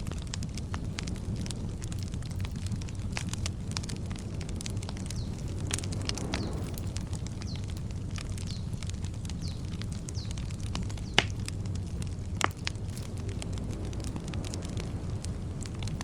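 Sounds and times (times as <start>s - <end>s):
campfire crackling: 0.0s - 16.0s
steady low rumble: 0.0s - 16.0s
bird chirping: 5.0s - 7.8s, 8.4s - 11.2s.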